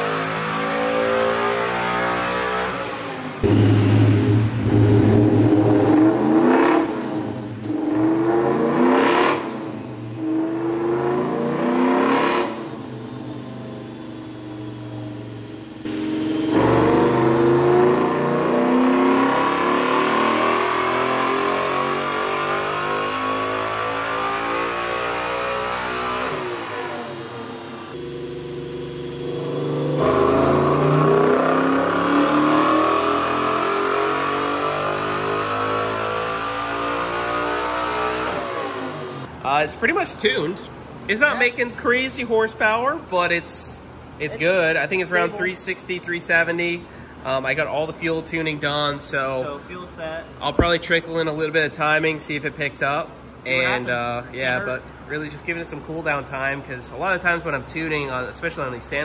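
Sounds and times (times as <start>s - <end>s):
truck engine revving on dyno: 0.0s - 39.3s.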